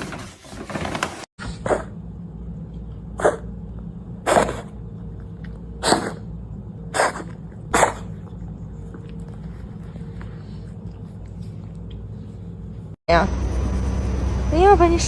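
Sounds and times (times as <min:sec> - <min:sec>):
cat sneezing: 0:03.2 - 0:03.4, 0:05.8 - 0:06.3, 0:06.9 - 0:08.2.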